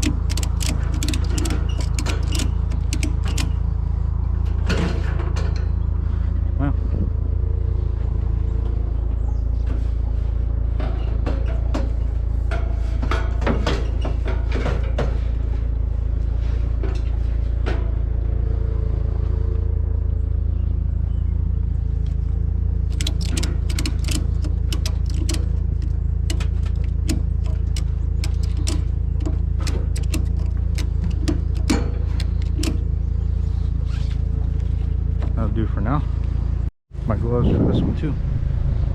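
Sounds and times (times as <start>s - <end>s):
sharp clicks and knocks: 0.0s - 3.7s, 22.8s - 33.0s
pickup truck engine rumble: 0.0s - 38.9s.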